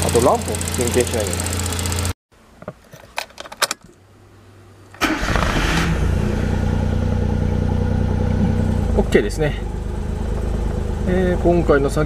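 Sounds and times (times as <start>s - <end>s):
car engine starting and idling: 0.0s - 2.2s, 4.9s - 12.0s.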